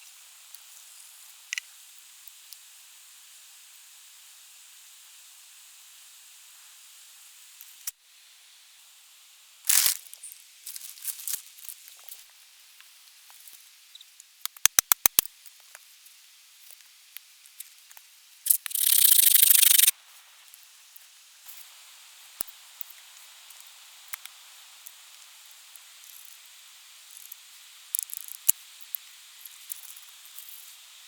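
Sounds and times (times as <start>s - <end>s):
loud tearing sound: 9.7s - 10.0s
rustling and small knocks: 9.7s - 12.3s
sharp clicks: 14.4s - 15.3s, 18.5s - 19.9s.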